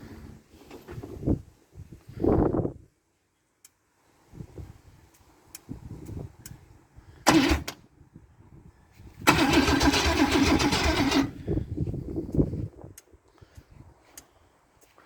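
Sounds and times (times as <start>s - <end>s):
engine starter cranking: 7.3s - 7.8s, 9.2s - 11.4s.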